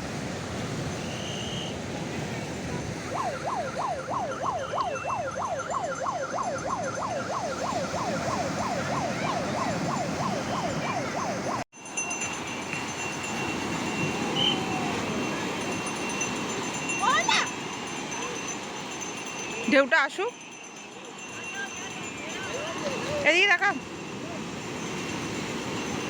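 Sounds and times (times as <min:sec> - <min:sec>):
surf rushing: 0:00.0 - 0:26.0
siren-like yelping wail: 0:02.6 - 0:11.7, 0:13.5 - 0:16.2, 0:22.1 - 0:24.6.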